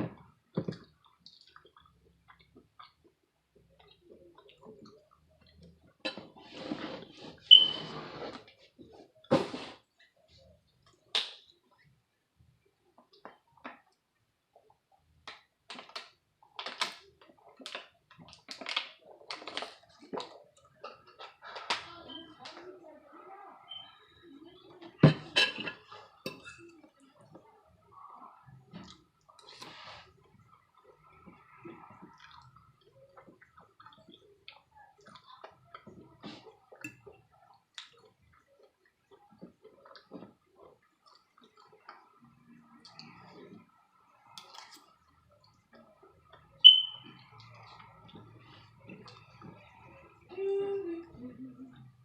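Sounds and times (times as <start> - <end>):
mouth clicks and smacks chewing: 0.7 - 5.9.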